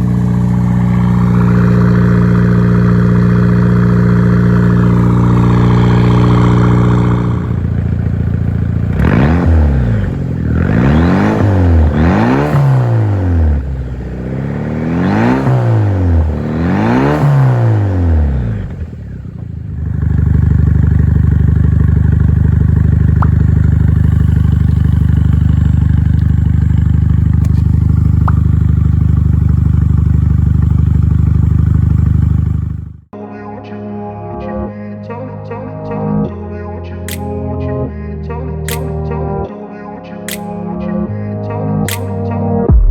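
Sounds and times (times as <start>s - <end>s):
car engine revving and idling: 0.0s - 33.1s.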